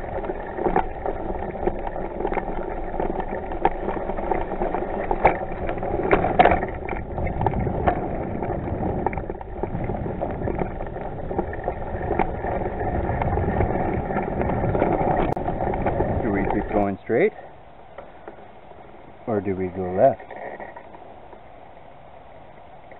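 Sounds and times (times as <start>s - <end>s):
bike rattling and knocking: 0.0s - 17.3s
bicycle tyres rolling on dirt: 0.0s - 22.9s.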